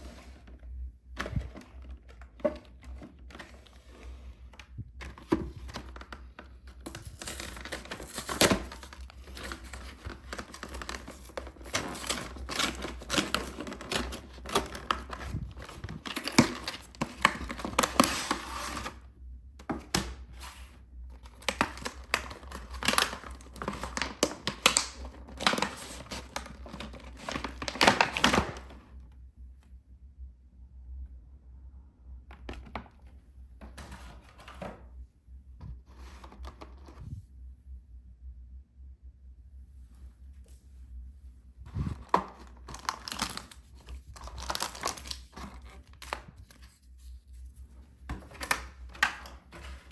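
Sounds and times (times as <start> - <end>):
plastic packaging crinkling and tearing: 6.8 - 19.0, 21.2 - 28.7, 41.7 - 47.4, 48.2 - 49.9.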